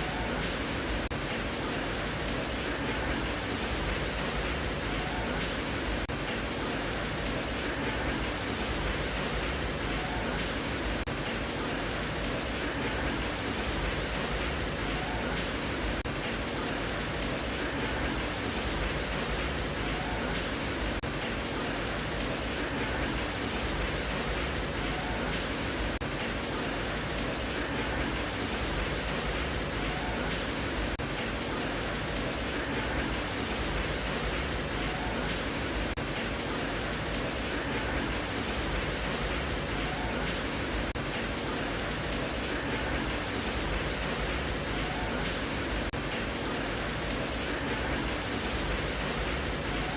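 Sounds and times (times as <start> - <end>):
steady rain hiss: 0.0 - 49.9.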